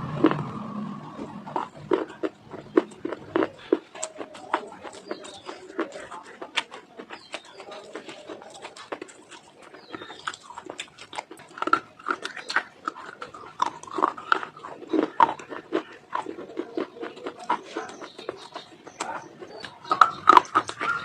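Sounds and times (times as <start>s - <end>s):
dry clay being chewed: 0.0s - 21.0s.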